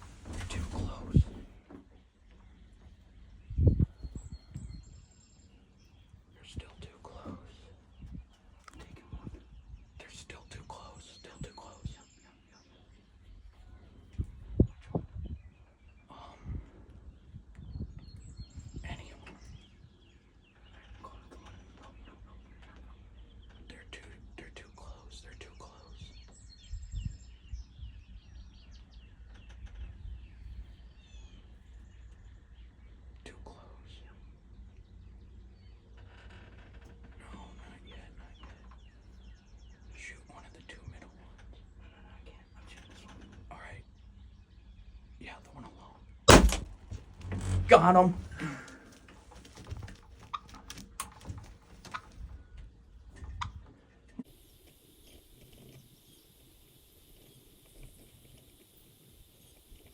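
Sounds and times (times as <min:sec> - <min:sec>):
rustling: 0:00.0 - 0:01.8, 0:46.3 - 0:52.3
songbirds chirping and singing: 0:00.0 - 0:54.2
steady low rumble: 0:46.2 - 0:49.1
sharp clicks: 0:46.3 - 0:48.2
faint steady hiss: 0:54.2 - 0:59.9.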